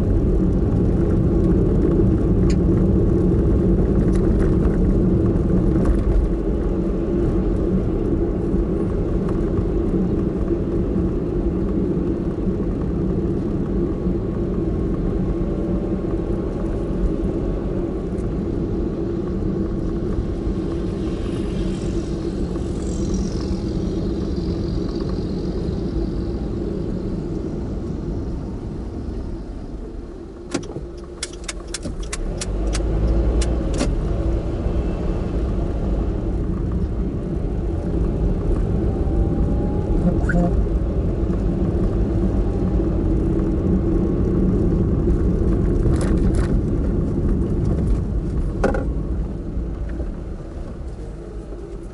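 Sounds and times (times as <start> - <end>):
car engine and road hum: 0.0 - 51.9
sharp clicks: 30.5 - 33.9.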